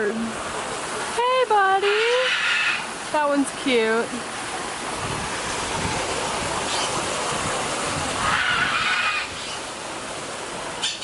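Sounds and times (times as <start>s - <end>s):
parrot drawn-out call: 1.8s - 2.9s, 8.2s - 9.6s
wind noise on microphone: 4.9s - 9.6s.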